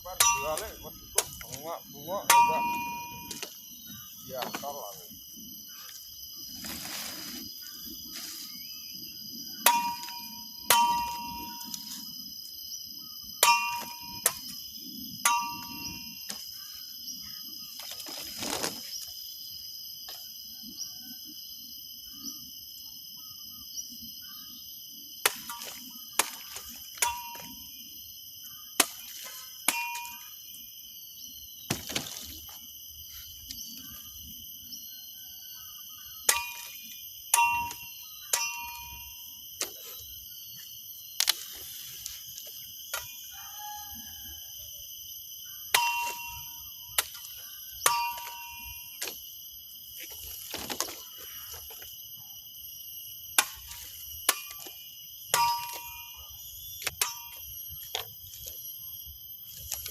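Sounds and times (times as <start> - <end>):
high insect chirring: 0.0 - 59.9
metallic ring of blade: 0.1 - 1.5, 2.2 - 3.6, 9.6 - 12.0, 13.4 - 14.6, 15.2 - 16.4, 29.7 - 30.4, 36.3 - 39.2, 45.7 - 46.7, 47.8 - 49.0, 57.0 - 57.5
machete chopping: 25.2 - 27.5, 28.8 - 30.2, 31.7 - 32.2, 53.4 - 56.0.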